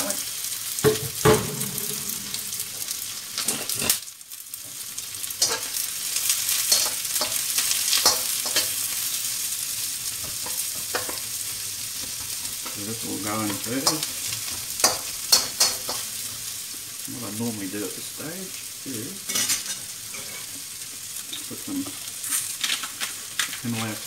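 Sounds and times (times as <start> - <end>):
onions sizzling in hot oil: 0.0 - 24.0
utensil scraping a wok: 0.8 - 4.0, 5.3 - 9.4, 10.2 - 16.6, 19.3 - 20.7, 21.4 - 24.0
sharp knocks: 0.9 - 2.4.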